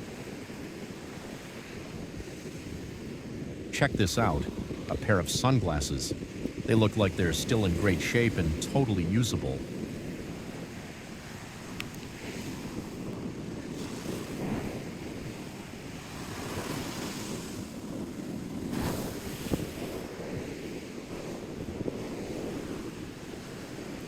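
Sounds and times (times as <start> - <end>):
surf washing onto beach: 0.0 - 24.0
wind rumbling on microphone: 0.0 - 24.0.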